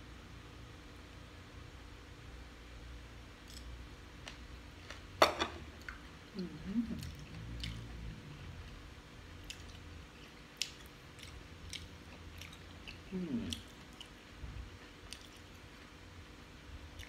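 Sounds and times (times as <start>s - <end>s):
man chewing with wet smacks: 5.8s - 16.0s, 16.8s - 17.0s
man humming: 13.1s - 13.6s.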